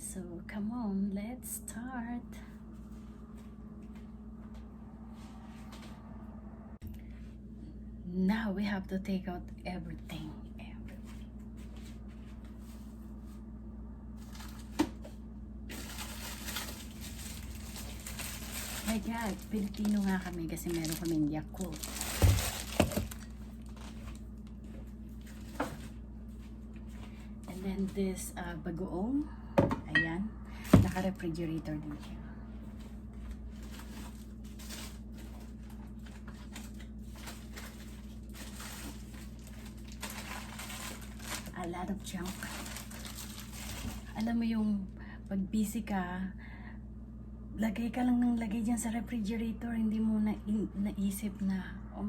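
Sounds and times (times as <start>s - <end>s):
refrigerator humming: 0.0s - 52.0s
packaging rustling: 14.2s - 27.2s, 32.8s - 44.2s.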